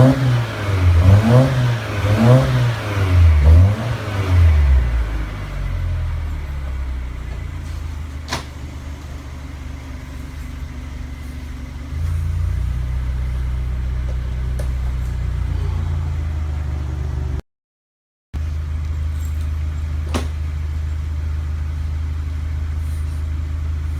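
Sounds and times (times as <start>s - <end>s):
car engine idling: 0.0s - 17.4s, 18.4s - 23.9s.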